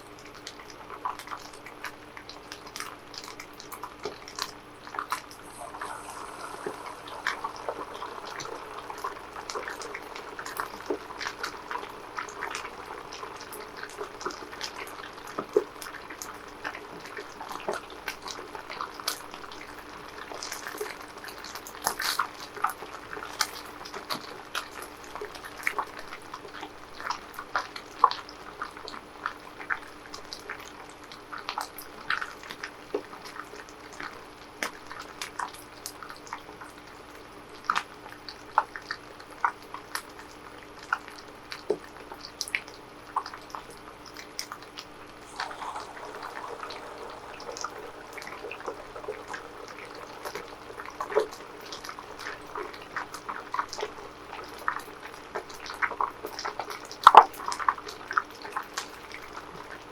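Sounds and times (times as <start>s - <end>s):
food sizzling in hot oil: 5.2s - 19.0s, 45.1s - 53.9s.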